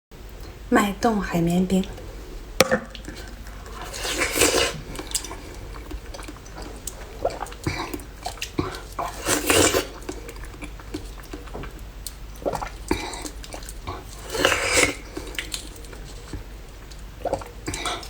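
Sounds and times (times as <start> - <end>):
spoon scraping ice slush: 3.6 - 5.2, 9.0 - 10.0.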